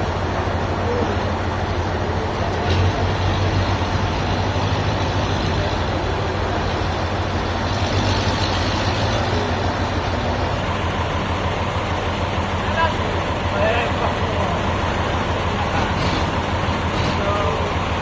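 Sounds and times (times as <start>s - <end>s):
heavy engine running: 0.0s - 18.0s.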